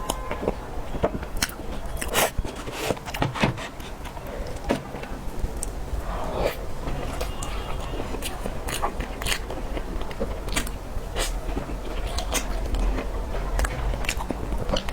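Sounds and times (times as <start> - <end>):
cake being eaten close up: 6.0 - 14.9.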